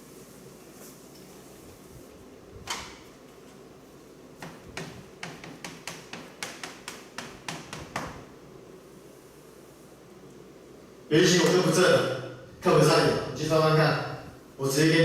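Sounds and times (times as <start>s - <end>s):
quick taps: 4.4s - 8.2s.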